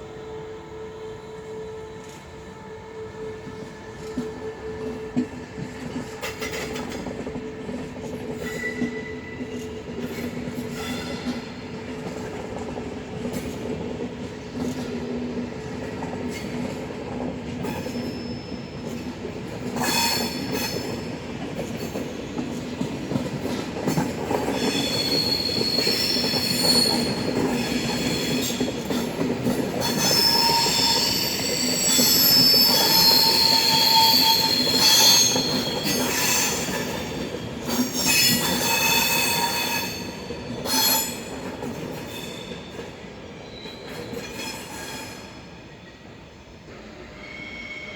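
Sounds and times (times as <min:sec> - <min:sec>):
high-pitched squeals: 0:29.9 - 0:36.8.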